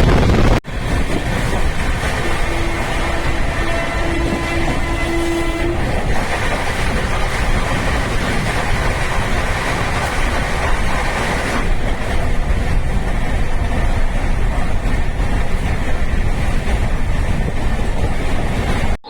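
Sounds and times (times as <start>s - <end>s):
train wheels rumbling on track: 0.0s - 19.0s
train horn: 2.2s - 6.1s.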